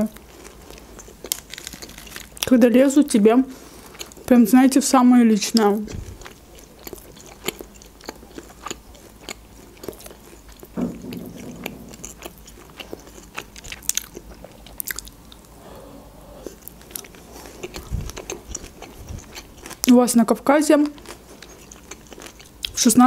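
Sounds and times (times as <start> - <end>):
mouth chewing food: 3.7 - 4.3, 5.4 - 10.8, 12.2 - 20.1, 20.8 - 22.8.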